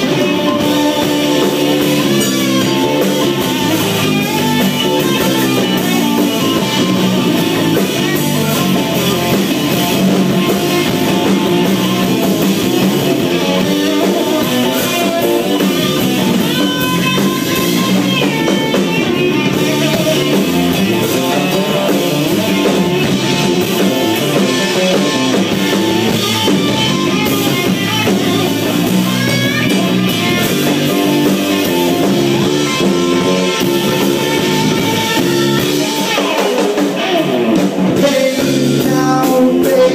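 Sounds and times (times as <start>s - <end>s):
drum kit: 0.0s - 39.9s
electric guitar with bending notes: 0.0s - 39.9s.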